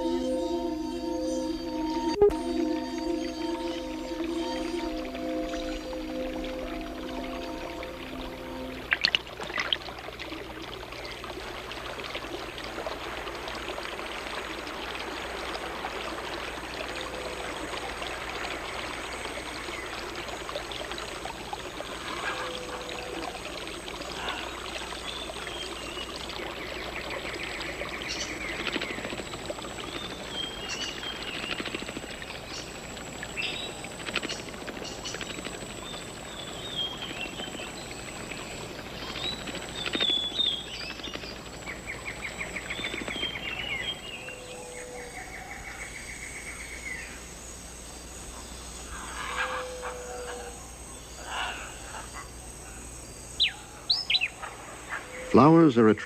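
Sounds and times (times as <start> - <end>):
high chirps and clicks: 0.0 - 10.0, 24.8 - 44.4
running water rushing: 0.0 - 45.4.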